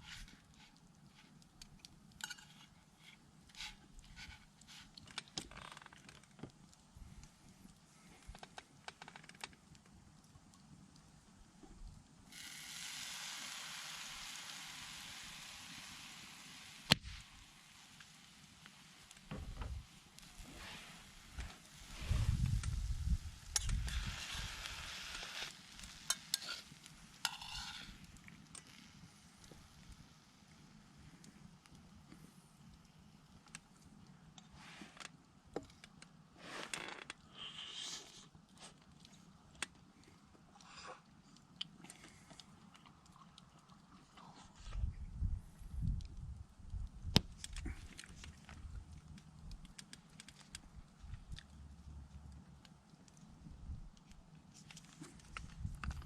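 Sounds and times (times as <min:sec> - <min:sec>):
small clicks and ticks: 0:00.1 - 0:02.7, 0:03.5 - 0:12.5, 0:31.0 - 0:37.3, 0:38.3 - 0:44.3, 0:45.8 - 0:56.0
food sizzling in a pan: 0:12.3 - 0:29.3
utensils clicking against pan: 0:27.3 - 0:27.8.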